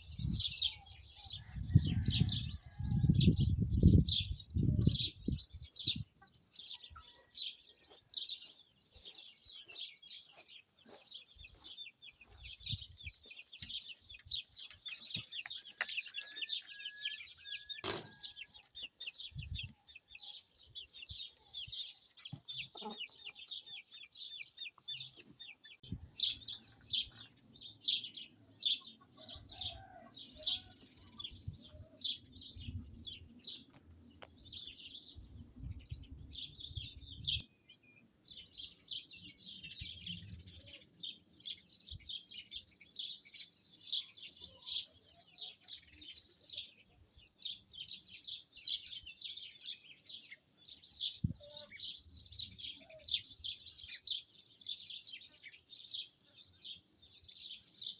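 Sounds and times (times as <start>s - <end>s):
small birds chirping: 0.0s - 57.9s
low wind rumble: 1.5s - 6.0s.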